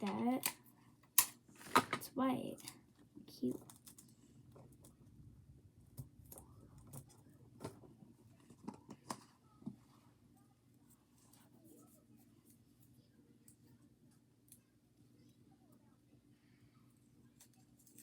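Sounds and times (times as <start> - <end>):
faint clicks and taps: 5.9 - 9.9.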